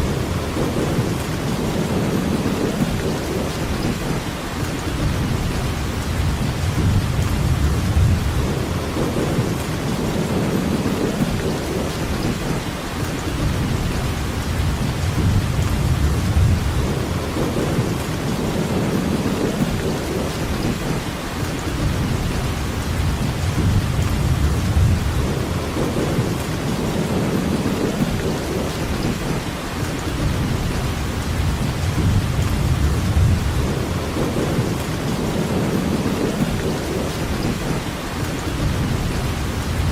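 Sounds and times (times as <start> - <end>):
heavy rain hissing: 0.0 - 39.9
low rumble: 5.0 - 9.7, 13.4 - 18.1, 21.8 - 26.5, 30.2 - 36.5.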